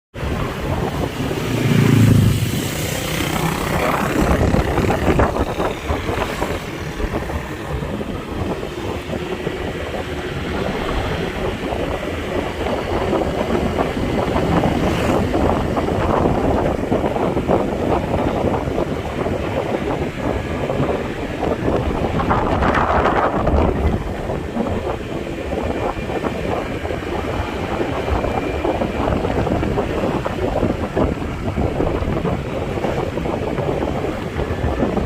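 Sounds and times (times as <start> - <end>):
low-pitched sound: 0.1 - 17.2
wind buffeting microphone: 0.1 - 35.0
motorcycle engine running: 0.2 - 28.0.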